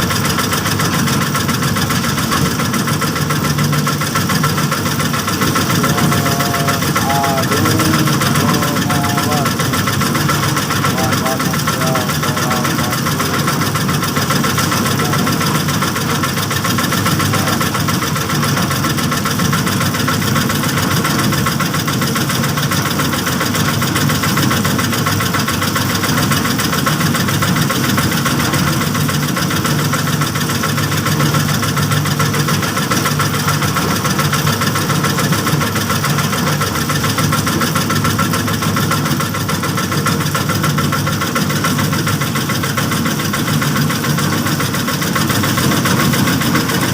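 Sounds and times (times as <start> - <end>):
small engine running steadily: 0.0 - 46.9.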